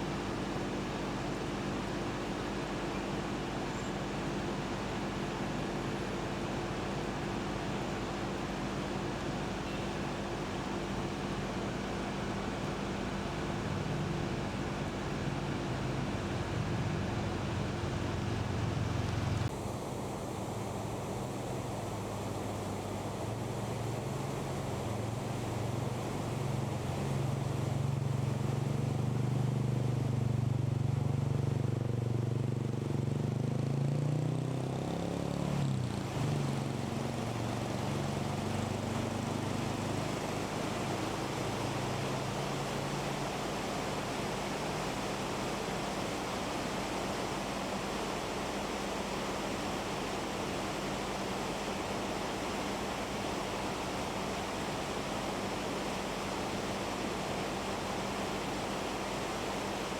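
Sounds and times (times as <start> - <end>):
vehicle engine passing by: 33.0 - 40.0.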